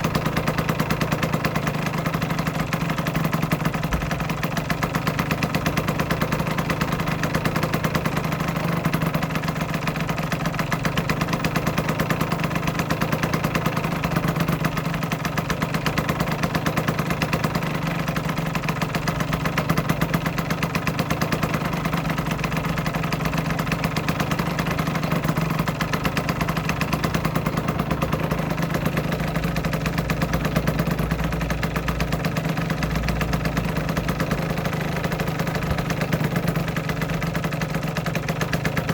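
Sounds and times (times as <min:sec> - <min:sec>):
two-stroke engine idling: 0:00.0 - 0:38.9.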